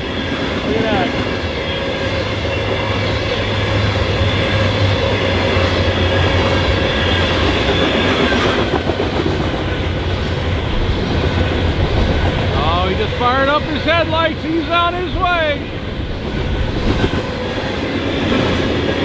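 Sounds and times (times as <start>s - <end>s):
train cars rumbling past: 0.0s - 19.0s.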